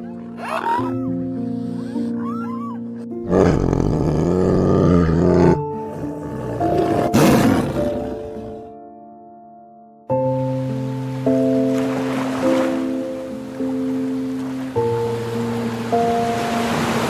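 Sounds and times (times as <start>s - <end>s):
soft piano music: 0.0s - 17.0s
tiger roaring: 3.2s - 8.7s.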